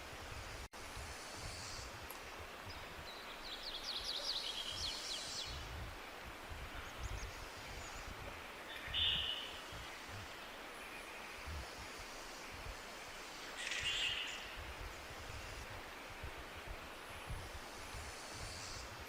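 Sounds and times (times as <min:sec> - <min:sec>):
forest hiss with low rumbles: 0:00.0 - 0:19.0
birds calling: 0:06.8 - 0:11.7, 0:13.1 - 0:15.1.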